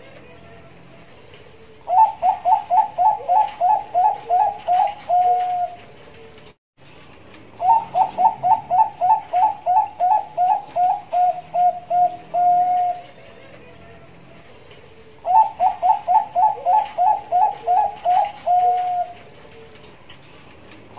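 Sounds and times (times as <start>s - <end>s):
dove cooing rapid staccato: 1.9s - 5.9s, 7.6s - 13.3s, 15.2s - 19.8s.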